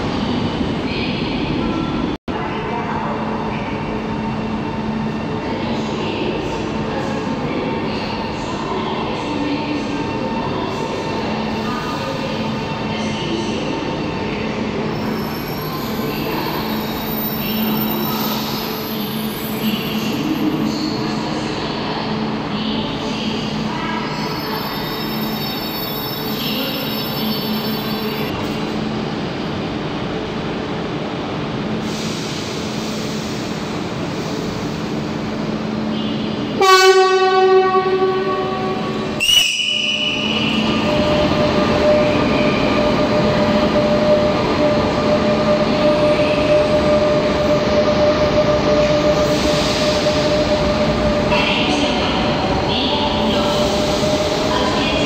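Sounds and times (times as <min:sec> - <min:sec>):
train horn blast: 0:36.6 - 0:40.1.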